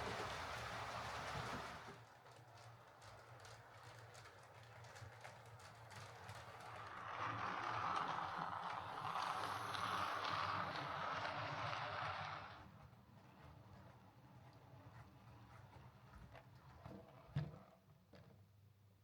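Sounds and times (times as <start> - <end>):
wheels clicking over rails: 0.0 - 2.0
model train motor whirring: 6.7 - 12.6.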